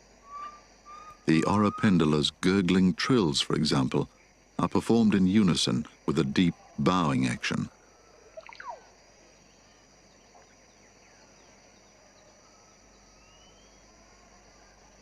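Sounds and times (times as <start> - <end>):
high-pitched insect drone: 0.0 - 15.0
faint rising whistle: 0.2 - 2.3, 12.2 - 14.9
falling bird notes: 0.3 - 2.1.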